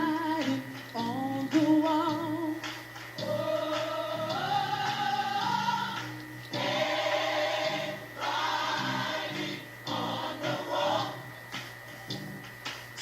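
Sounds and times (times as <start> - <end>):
gospel choir singing: 3.2 - 11.7.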